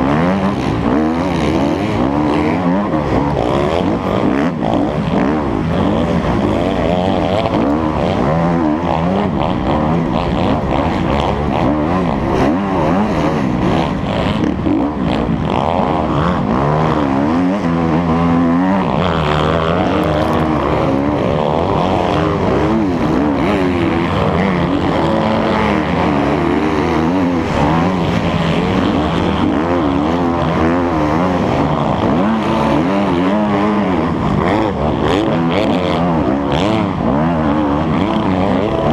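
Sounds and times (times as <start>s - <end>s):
motocross bike engine revving: 0.0s - 38.9s.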